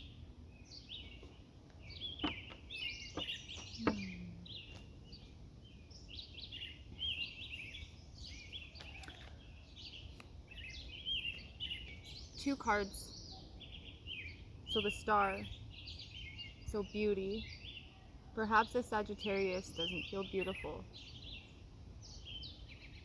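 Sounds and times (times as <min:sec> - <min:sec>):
birds chirping and warbling: 0:00.0 - 0:23.0.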